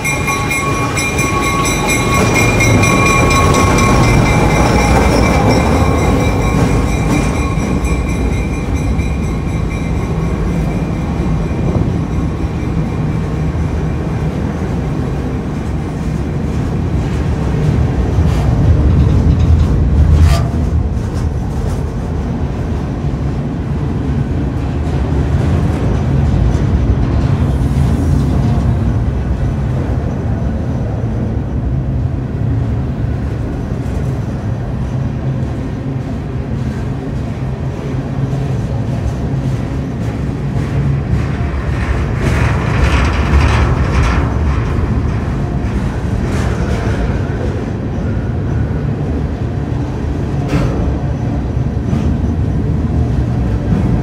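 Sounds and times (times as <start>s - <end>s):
thin high ringing: 0.0s - 13.9s
steel wheels rumbling on rail: 0.0s - 54.0s.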